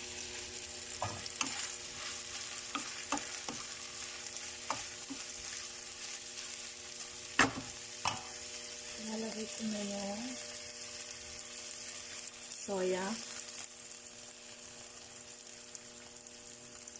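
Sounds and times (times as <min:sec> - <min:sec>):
chicken sizzling in a frying pan: 0:00.0 - 0:16.9.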